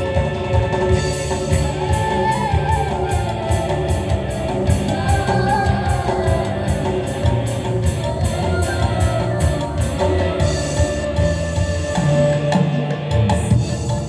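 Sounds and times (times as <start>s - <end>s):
live band music: 0.0s - 14.0s
person singing: 4.4s - 12.6s.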